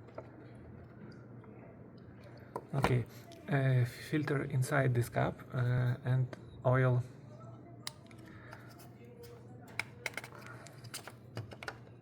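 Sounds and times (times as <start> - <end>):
small parts clicking and tapping: 9.7 - 11.8.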